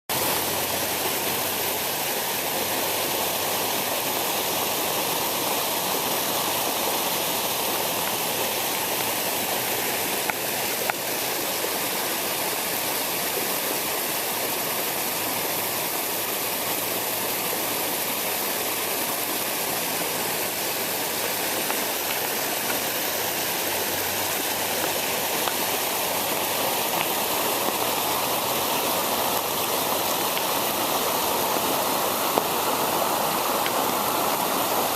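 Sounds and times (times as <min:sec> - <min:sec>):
storm water rushing: 0:19.0 - 0:34.9.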